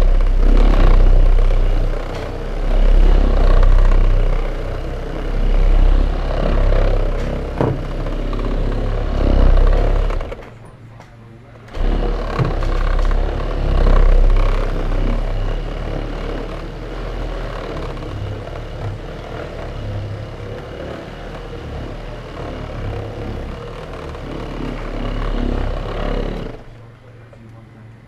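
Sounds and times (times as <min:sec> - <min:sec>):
power polisher running: 0:00.0 - 0:10.6, 0:11.7 - 0:26.9.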